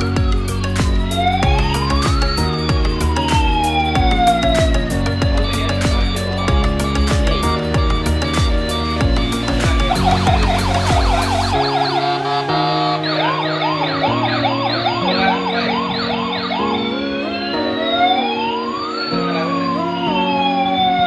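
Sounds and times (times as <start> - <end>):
ambient music with held chords: 0.0 - 21.0
electronic police siren: 0.0 - 21.0.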